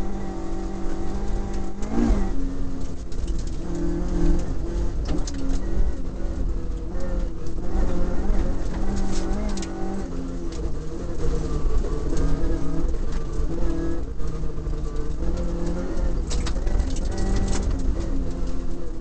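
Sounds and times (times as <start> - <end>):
car engine under load: 0.0 - 19.0
sharp clicks and knocks: 14.2 - 18.6.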